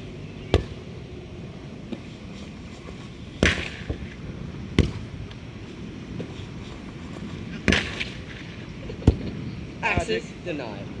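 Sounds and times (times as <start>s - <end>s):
volleyball struck by hand: 0.5s - 0.9s, 3.4s - 4.2s, 4.8s - 5.2s, 7.7s - 8.1s, 9.0s - 10.2s.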